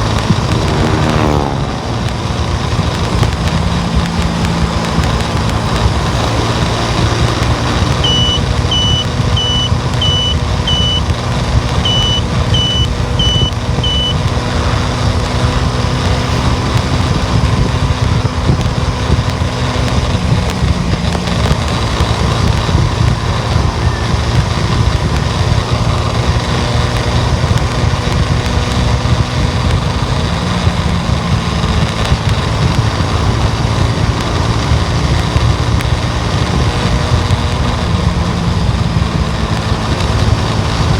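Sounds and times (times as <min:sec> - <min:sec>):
car road and engine noise: 0:00.0 - 0:40.9
high electronic beeps: 0:07.0 - 0:11.2, 0:11.8 - 0:14.2.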